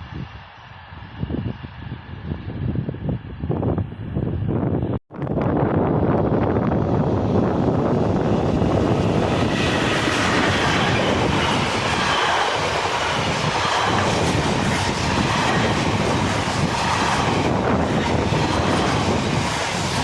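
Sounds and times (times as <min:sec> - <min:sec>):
train wheels rumbling on rails: 0:05.5 - 0:20.0.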